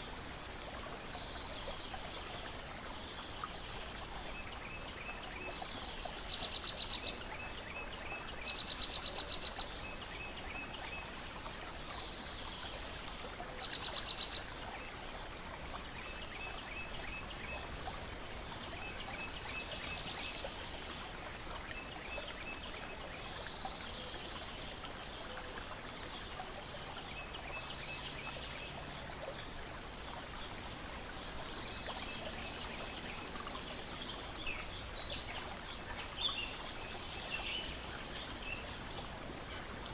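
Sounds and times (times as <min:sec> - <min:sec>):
water lapping and trickling: 0:00.0 - 0:39.9.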